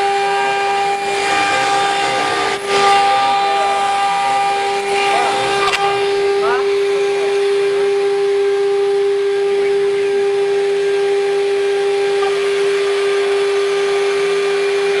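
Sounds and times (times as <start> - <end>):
bit cutting acrylic with hiss: 0.0 - 7.8
router spindle high whine: 0.0 - 15.0.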